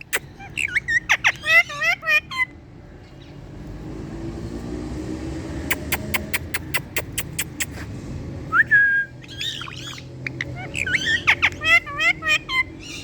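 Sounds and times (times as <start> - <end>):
sharp clicks: 5.7 - 7.7.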